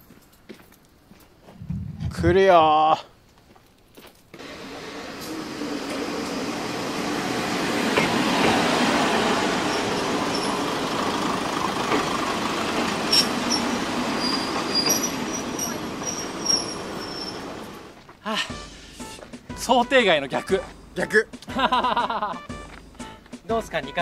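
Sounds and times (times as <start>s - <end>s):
diesel railcar passing: 4.4s - 18.0s
thin high squeals: 9.6s - 10.8s, 13.0s - 17.9s.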